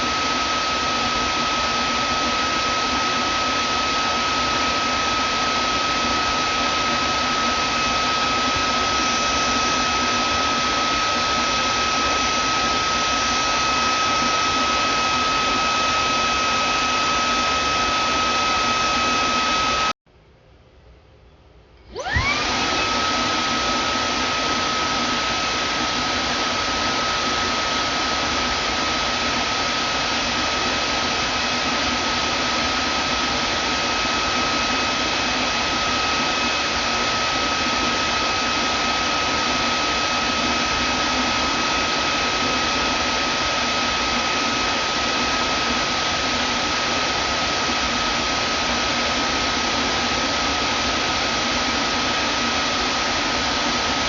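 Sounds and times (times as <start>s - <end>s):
vacuum cleaner running: 0.0s - 20.0s, 21.8s - 54.0s.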